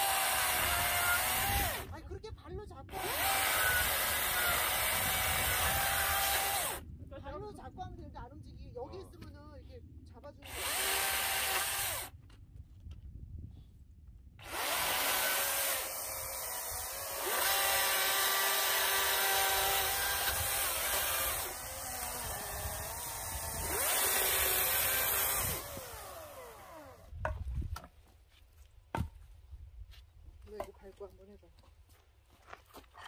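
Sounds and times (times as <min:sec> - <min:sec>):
chainsaw cutting through log: 0:00.0 - 0:01.9, 0:02.9 - 0:06.8, 0:10.4 - 0:12.1, 0:14.4 - 0:27.1.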